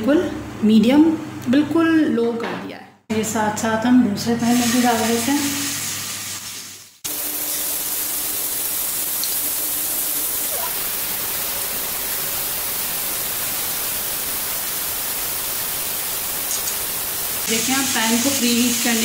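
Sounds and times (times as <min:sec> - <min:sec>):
meat sizzling in hot oil: 0:04.4 - 0:19.0.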